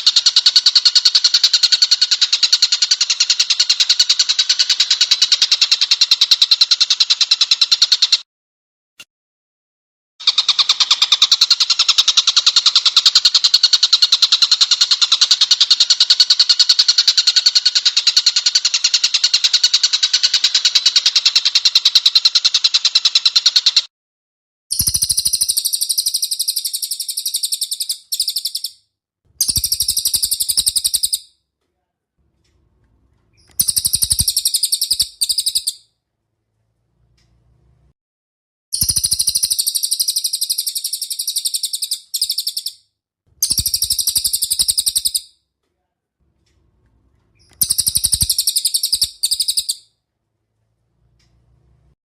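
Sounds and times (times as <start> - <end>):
buzzy high-pitched bird trill: 24.7 - 28.8, 29.4 - 31.3, 33.4 - 35.8, 38.7 - 42.8, 43.4 - 45.3, 47.4 - 49.9.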